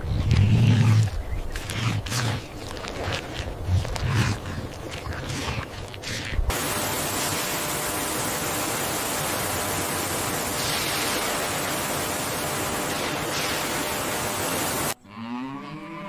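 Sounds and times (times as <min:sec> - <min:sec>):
steady loud hiss: 0:06.5 - 0:15.0
cow mooing: 0:15.0 - 0:16.0.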